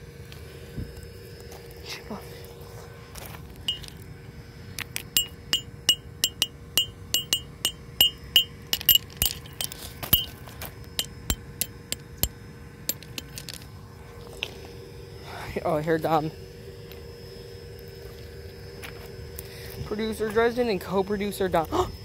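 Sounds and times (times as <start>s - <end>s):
sharp metallic strikes ringing: 5.2s - 10.3s.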